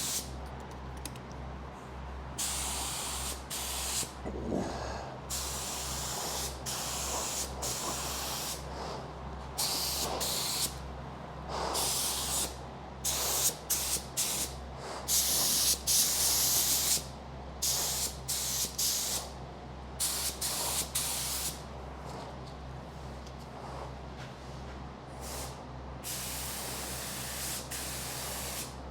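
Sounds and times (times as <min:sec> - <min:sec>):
spray gun hissing: 0:00.0 - 0:00.3, 0:02.4 - 0:04.1, 0:05.3 - 0:08.6, 0:09.6 - 0:10.8, 0:26.1 - 0:28.7
steady low hum: 0:00.0 - 0:16.4.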